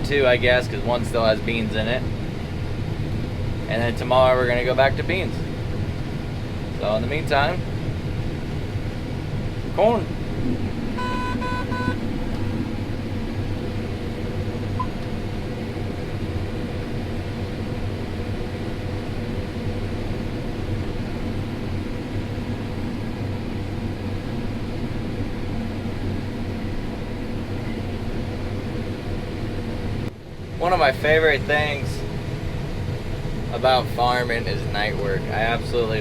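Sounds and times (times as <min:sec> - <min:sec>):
combine harvester drone: 0:00.0 - 0:36.0
two-tone electronic beep: 0:11.0 - 0:12.0, 0:14.8 - 0:15.0.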